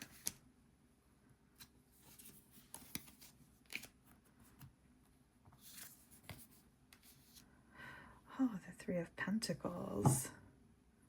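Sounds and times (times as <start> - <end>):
cards being flipped: 0.0 - 0.4, 1.6 - 4.7, 5.6 - 7.4.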